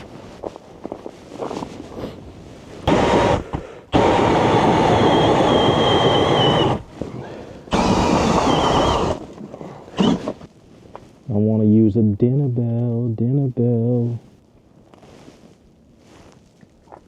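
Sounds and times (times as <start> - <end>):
motor-driven tool running: 4.0 - 6.8, 7.7 - 9.2.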